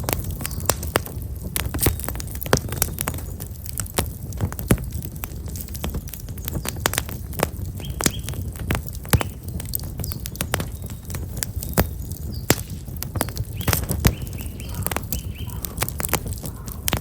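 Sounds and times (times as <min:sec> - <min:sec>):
campfire crackling and popping: 0:00.0 - 0:17.0
small bird chirping: 0:07.8 - 0:08.5, 0:09.1 - 0:16.8.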